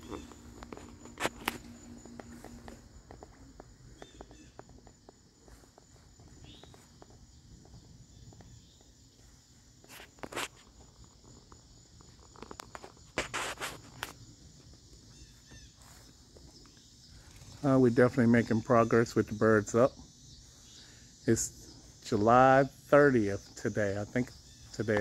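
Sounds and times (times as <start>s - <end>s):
soft footsteps: 0.0s - 17.6s
high-pitched insect drone: 0.0s - 25.0s.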